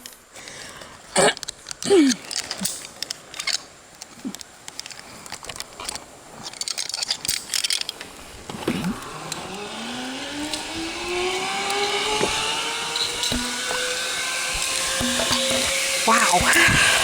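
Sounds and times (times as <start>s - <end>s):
gear clicking and rattling: 0.0s - 17.0s
zip line pulley whine: 6.6s - 17.0s
hiss: 7.3s - 17.0s.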